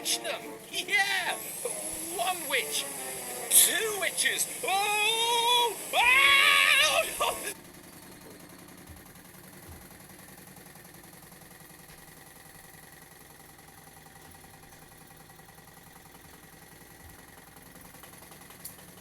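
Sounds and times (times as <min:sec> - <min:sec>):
background hiss: 0:00.0 - 0:07.6
faint steady hum: 0:00.0 - 0:07.6.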